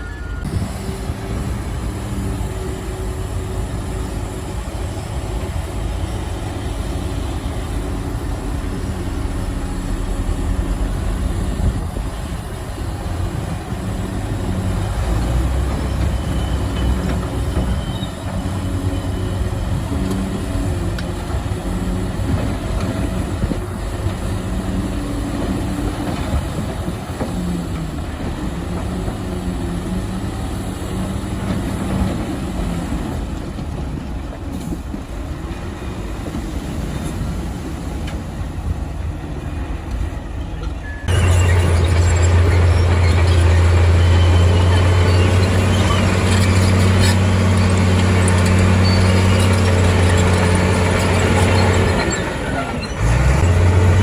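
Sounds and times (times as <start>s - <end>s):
low engine drone: 0.0s - 16.5s
bulldozer diesel engine working: 0.0s - 54.0s.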